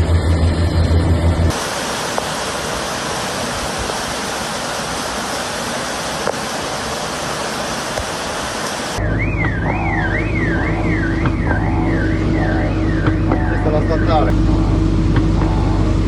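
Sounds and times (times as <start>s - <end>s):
floodwater rushing: 1.5s - 14.0s
warbling alarm: 8.9s - 16.0s.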